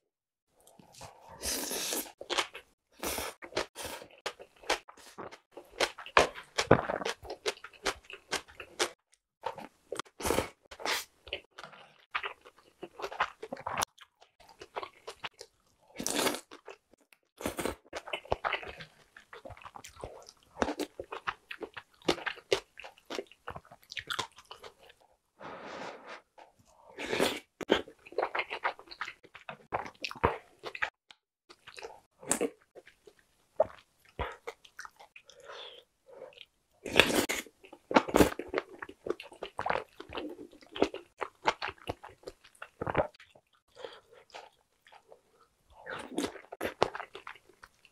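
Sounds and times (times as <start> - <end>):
chewing crunches: 45.8 - 47.9.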